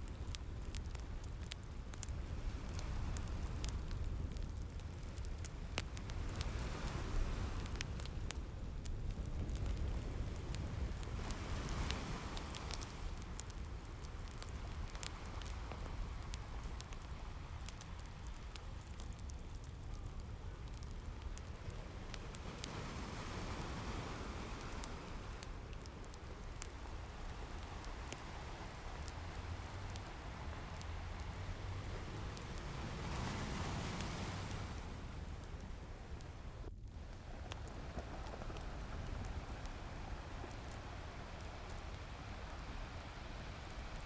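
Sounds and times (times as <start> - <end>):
fireplace crackling: 0.0 - 44.0
ocean waves washing in: 9.4 - 18.4, 21.0 - 44.0.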